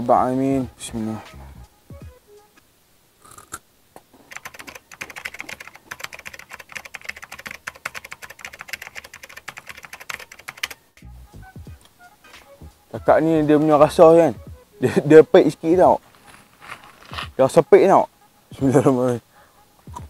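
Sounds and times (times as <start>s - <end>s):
crunchy chewing: 3.2s - 3.6s.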